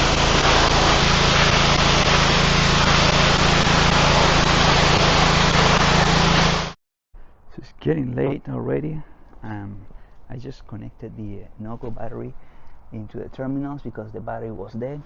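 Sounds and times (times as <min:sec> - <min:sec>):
pressure washer spraying: 0:00.0 - 0:06.8
low motor hum: 0:00.0 - 0:08.5.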